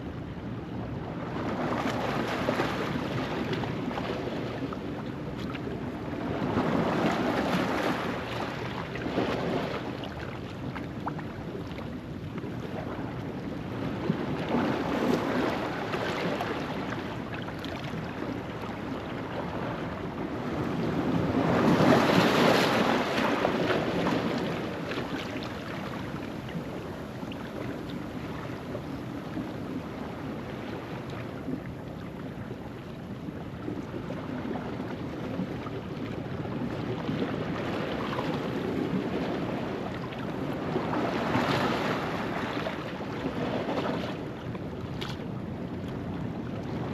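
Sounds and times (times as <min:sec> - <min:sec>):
ocean waves on rocky shore: 0:06.0 - 0:09.9, 0:18.8 - 0:31.6, 0:34.3 - 0:46.9.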